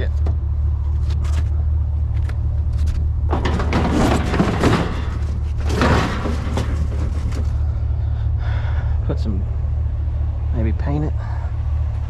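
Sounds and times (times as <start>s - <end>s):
vehicle engine idling: 0.0s - 12.0s
object clattering and scraping: 2.1s - 7.8s.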